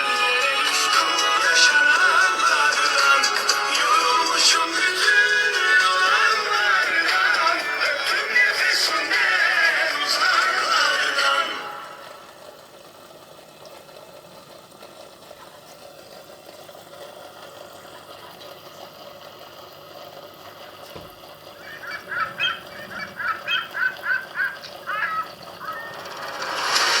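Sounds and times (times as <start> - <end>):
rapid animal calls: 21.4 - 27.0.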